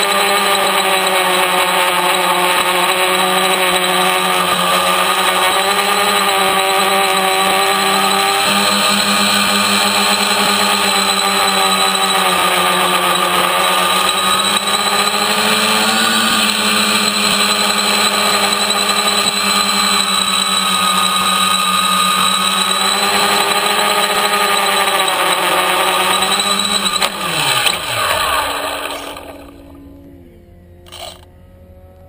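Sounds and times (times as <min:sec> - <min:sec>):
electric motors and propellers: 0:00.0 - 0:32.0.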